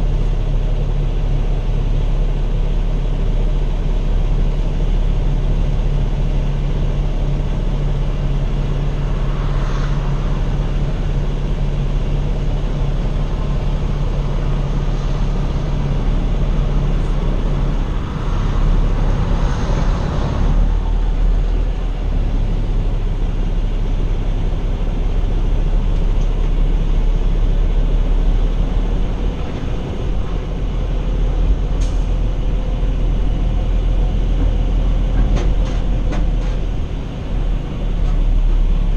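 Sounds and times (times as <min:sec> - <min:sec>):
road rumble: 0:00.0 - 0:38.9
truck engine drone: 0:00.0 - 0:38.9
rushing noise: 0:07.3 - 0:22.9.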